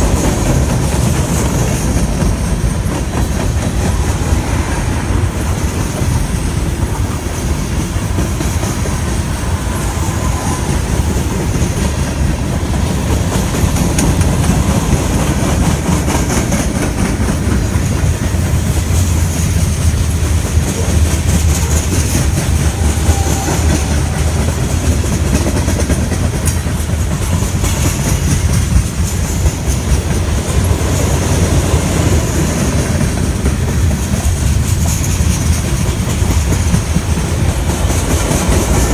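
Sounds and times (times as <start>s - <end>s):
freight train cars rolling: 0.0s - 38.9s
wheels clattering over rail joints: 0.0s - 38.9s.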